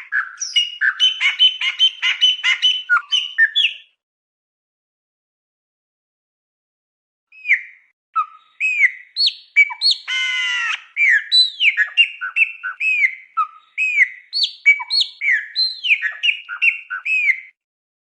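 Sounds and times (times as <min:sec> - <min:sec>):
songbird singing whistled notes: 0:00.0 - 0:04.0, 0:07.3 - 0:17.6.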